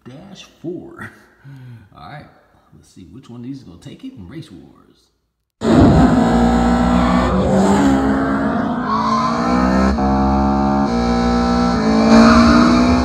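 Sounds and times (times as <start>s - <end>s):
car engine accelerating: 5.6s - 13.0s.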